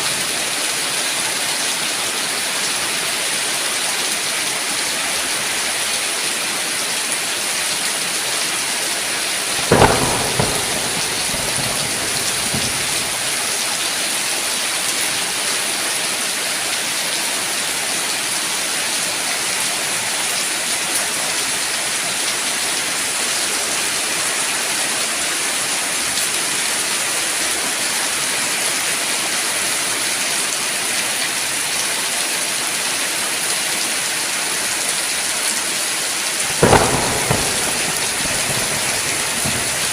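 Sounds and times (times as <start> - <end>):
heavy rain hissing: 8.1 - 15.3, 36.2 - 39.9
thunderclap rumbling: 9.5 - 13.8, 36.4 - 39.9.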